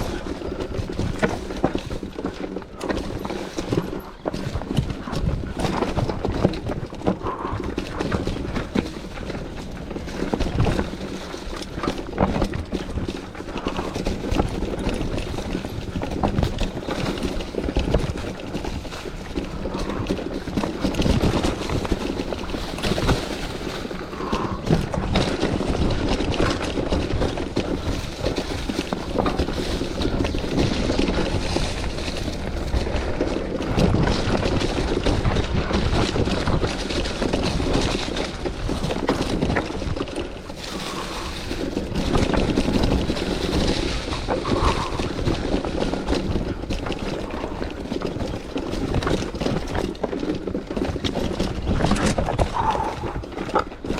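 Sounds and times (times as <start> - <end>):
bike clattering over bumps: 0.0 - 53.9
bike tyres on dirt: 0.0 - 53.9
wind on microphone: 19.3 - 50.0, 50.6 - 53.9.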